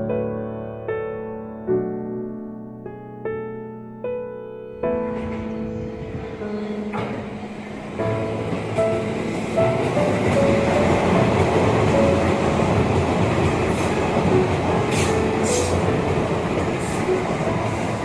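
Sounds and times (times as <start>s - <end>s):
train rumbling past: 4.8s - 18.0s.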